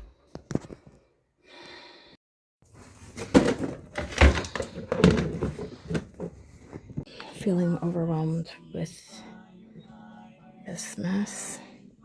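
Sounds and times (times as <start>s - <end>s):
objects knocking and clunking: 2.7s - 7.1s.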